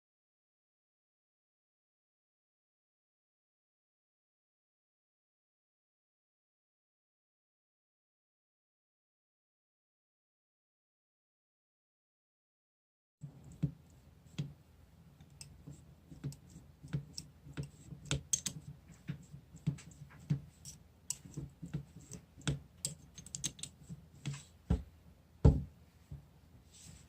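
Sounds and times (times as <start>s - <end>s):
light clicks of small parts: 20.7s - 23.8s.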